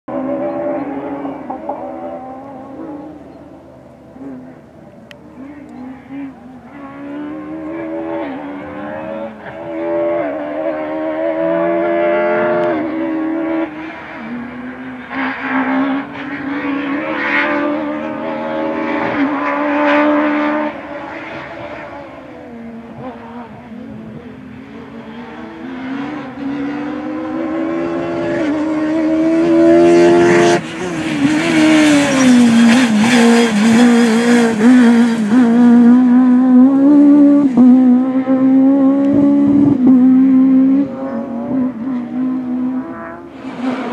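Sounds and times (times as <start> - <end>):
rally car engine revving: 0.1 - 43.9.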